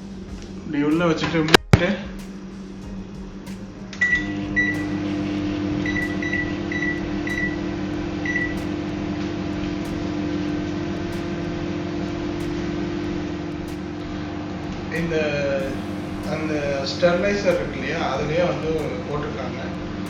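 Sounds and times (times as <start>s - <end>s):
microwave humming: 0.0s - 20.0s
keypad beeps: 5.8s - 7.6s, 8.2s - 8.6s.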